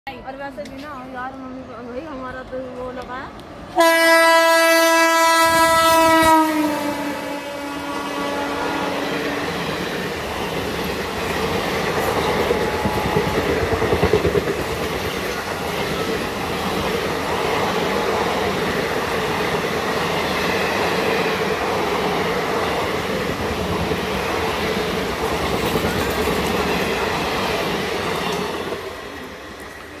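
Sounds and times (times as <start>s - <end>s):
train horn: 3.8s - 9.9s, 12.0s - 13.8s
train wheels rumbling and clattering: 8.6s - 30.0s.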